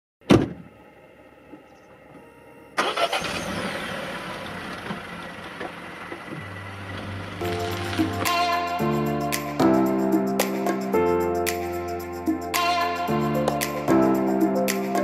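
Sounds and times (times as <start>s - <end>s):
car engine starting and running: 2.8s - 8.4s.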